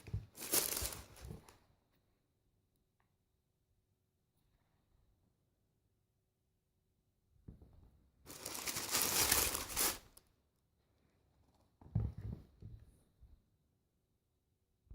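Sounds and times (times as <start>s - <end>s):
packaging crinkling and tearing: 0.3s - 1.4s, 8.3s - 10.2s.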